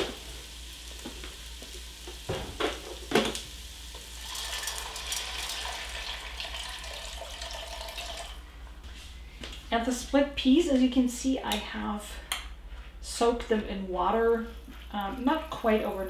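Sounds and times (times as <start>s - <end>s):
onion and bacon sizzling: 0.0s - 8.4s, 14.0s - 16.0s
water poured into hot pot hissing: 2.9s - 8.4s.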